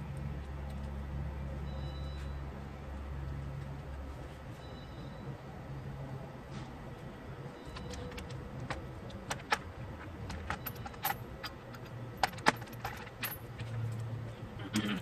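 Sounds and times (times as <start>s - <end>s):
metal tools clinking: 9.3s - 14.0s.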